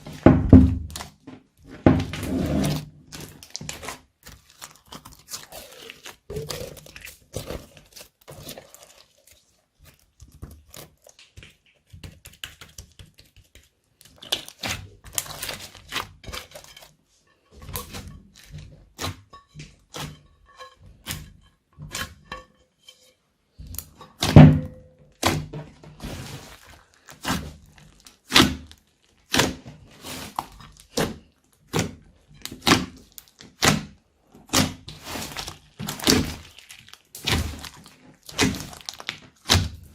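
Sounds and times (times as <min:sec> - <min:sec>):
slime squished by hand: 0:02.7 - 0:16.6, 0:23.6 - 0:39.9.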